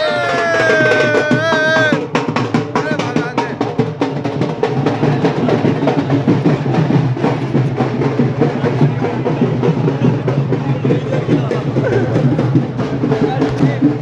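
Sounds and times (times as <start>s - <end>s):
fast drumming: 0.0s - 14.0s
music: 0.0s - 14.0s.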